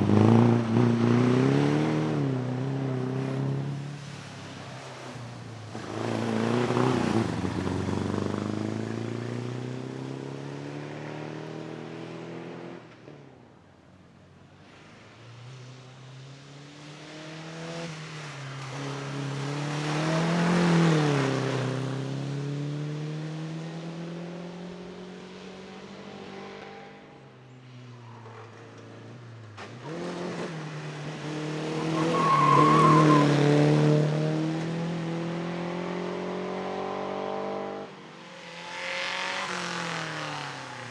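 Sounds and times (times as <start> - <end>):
racing car engines accelerating past: 0.0 - 4.2, 5.7 - 13.0, 28.2 - 40.9.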